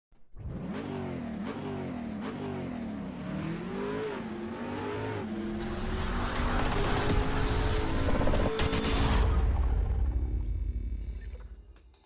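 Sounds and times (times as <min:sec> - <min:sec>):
car engine revving: 0:00.4 - 0:09.0.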